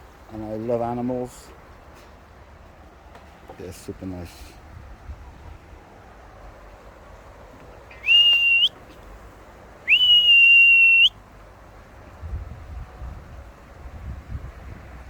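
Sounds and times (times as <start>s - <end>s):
high recall whistles: 7.9s - 8.8s, 9.8s - 11.2s.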